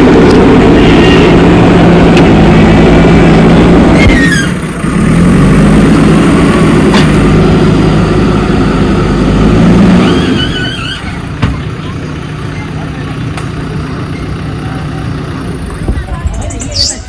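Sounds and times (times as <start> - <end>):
diesel engine running: 0.0 - 17.0
short falling squeal: 10.0 - 11.1.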